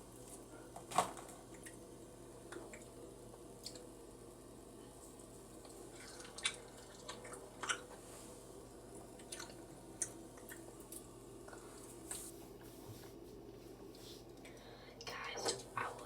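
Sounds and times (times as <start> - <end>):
wet chewing: 5.6 - 8.0, 9.1 - 11.9.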